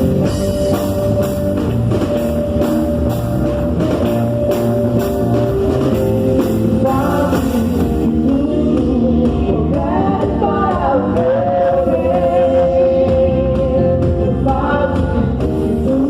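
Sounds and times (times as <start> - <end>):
drum kit beat: 0.0 - 16.0
guitar: 0.0 - 16.0
person singing: 6.4 - 16.0.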